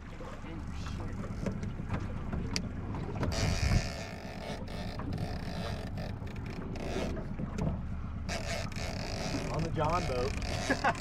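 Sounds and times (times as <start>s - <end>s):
boat motor humming: 0.0s - 11.0s
wind and water rushing: 0.0s - 11.0s.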